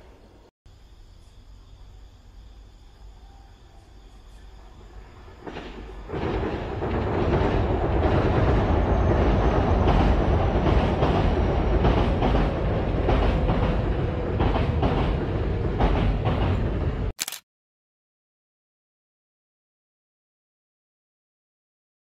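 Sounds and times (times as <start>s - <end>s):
electric train passing: 2.9s - 17.1s.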